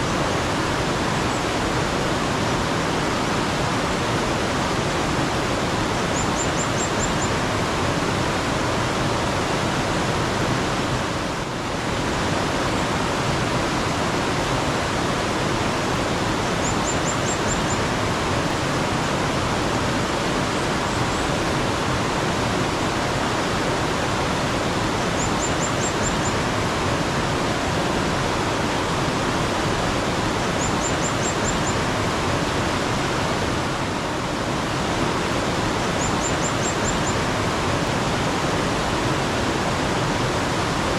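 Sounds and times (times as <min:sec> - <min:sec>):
water rushing: 0:00.0 - 0:40.9
bird chirping: 0:06.1 - 0:07.3, 0:16.6 - 0:17.8, 0:30.6 - 0:31.8, 0:36.0 - 0:37.2.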